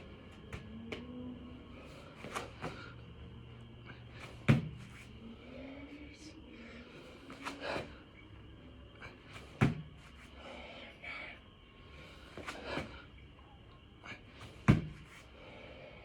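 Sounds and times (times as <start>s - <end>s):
person breathing hard: 0.0s - 13.3s, 13.9s - 16.0s
body thudding on floor: 4.2s - 5.0s, 9.4s - 10.1s, 14.4s - 15.1s.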